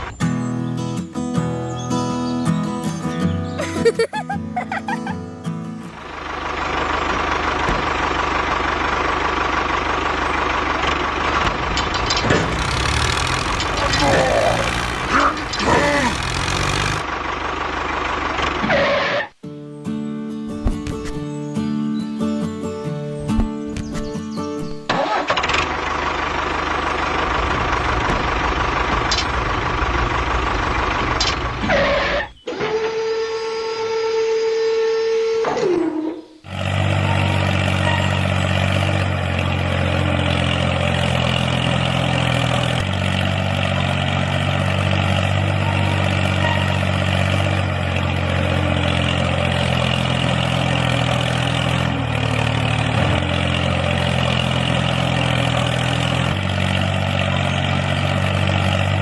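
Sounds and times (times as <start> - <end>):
small motor running rough: 6.0 - 19.3, 36.5 - 59.0.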